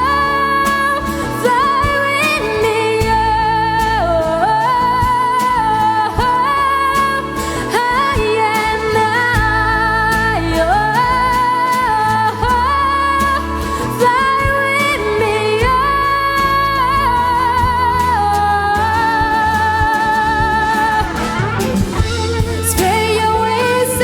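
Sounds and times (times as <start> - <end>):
high melody with vibrato: 0.0 - 24.0
live rock band playing: 17.7 - 24.0.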